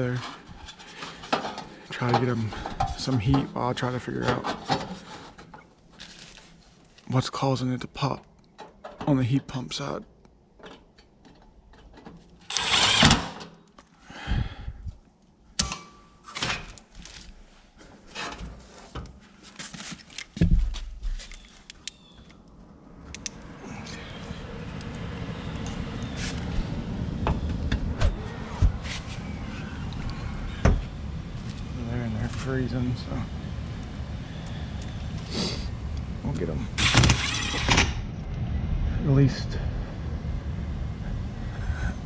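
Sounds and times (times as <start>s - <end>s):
metal scraping: 12.5s - 13.4s, 36.8s - 38.1s
steady low rushing noise: 22.7s - 36.8s, 37.8s - 42.0s.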